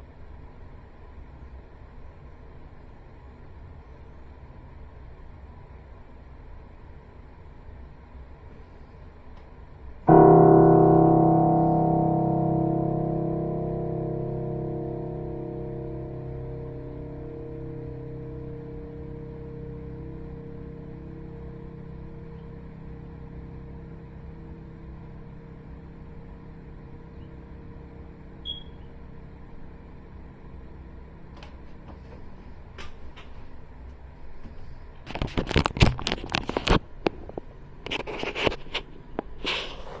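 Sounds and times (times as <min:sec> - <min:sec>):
engine humming: 0:10.1 - 0:34.0.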